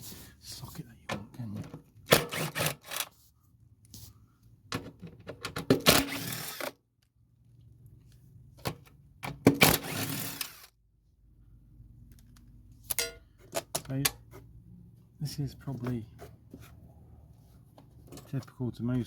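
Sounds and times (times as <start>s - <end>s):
metal socket tools clattering: 12.9s - 14.0s.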